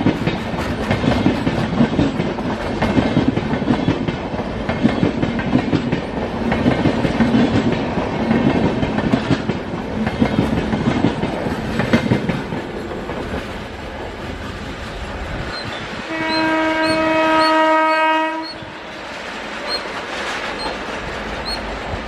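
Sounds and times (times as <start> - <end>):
train wheels clattering over rails: 0.0 - 22.0
train horn blast: 15.5 - 18.9.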